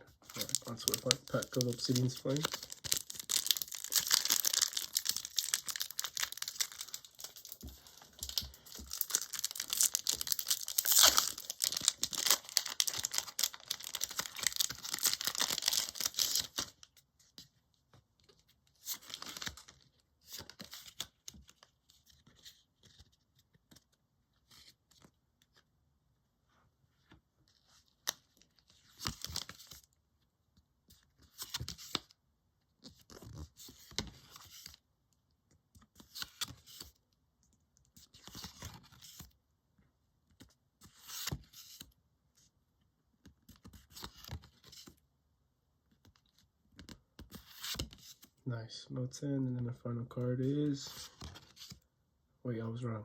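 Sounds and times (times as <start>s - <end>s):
cards rustling: 0.2s - 16.8s, 18.9s - 19.8s
foil wrapper crinkling and tearing: 0.2s - 16.8s.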